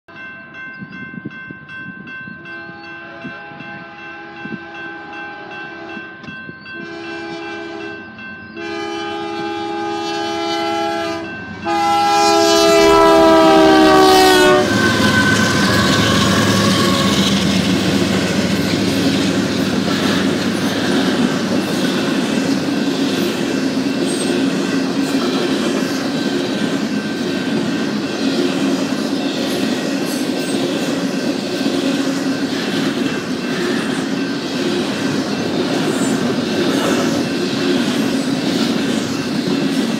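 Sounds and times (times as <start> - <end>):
locomotive passing: 0.2 - 39.9
locomotive air horn blasts: 2.6 - 6.1, 6.8 - 8.0, 8.6 - 17.4
train wheels rumbling and clattering: 11.4 - 39.9.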